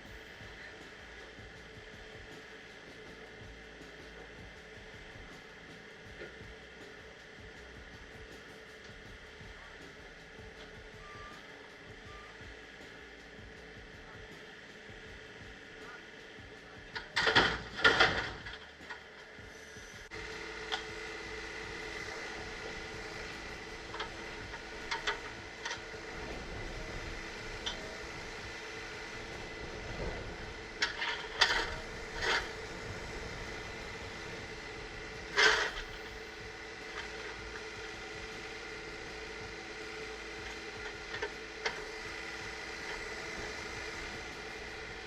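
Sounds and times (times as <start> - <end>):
machinery whining: 0.0 - 45.0
sharp knocks and clanks: 17.0 - 19.1.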